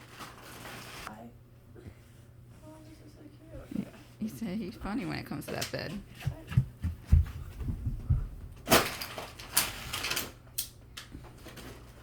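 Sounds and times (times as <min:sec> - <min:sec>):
soft low thumps: 0:06.3 - 0:08.6.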